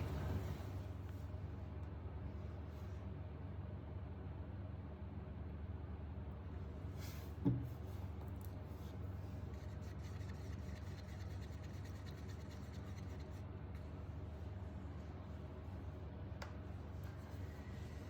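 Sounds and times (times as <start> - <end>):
steady low hum: 0.0 - 18.0
stick stirring paint in a cup: 9.4 - 14.0.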